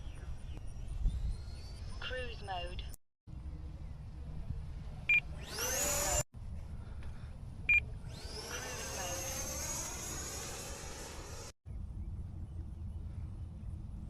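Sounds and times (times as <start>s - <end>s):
wind rumbling on microphone: 0.0s - 8.5s.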